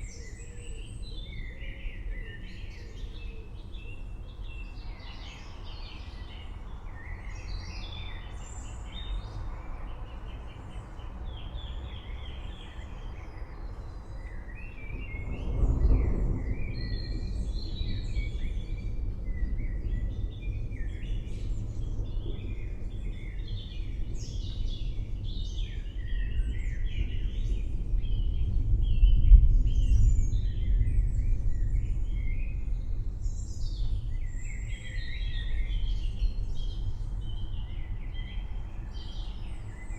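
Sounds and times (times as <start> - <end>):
distant thunder rumbling: 14.8 - 23.2, 26.4 - 38.6.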